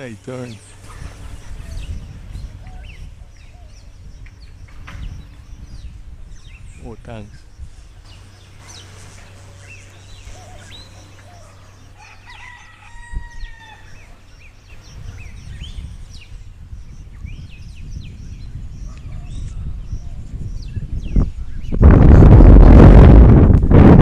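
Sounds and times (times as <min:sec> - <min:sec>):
small birds chirping: 0:00.0 - 0:21.8
wind rumbling on microphone: 0:00.0 - 0:24.0
rooster crowing: 0:11.2 - 0:14.3.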